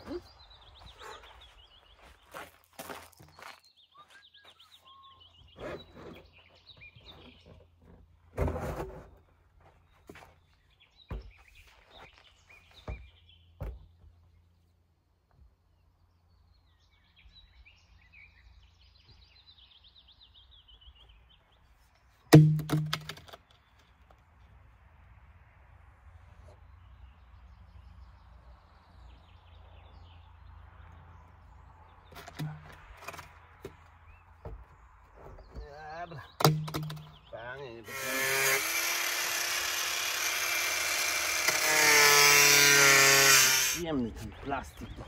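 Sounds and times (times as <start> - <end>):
sharp knocks and thuds: 11.1 - 11.5, 12.8 - 14.2, 22.3 - 23.4, 32.1 - 37.2.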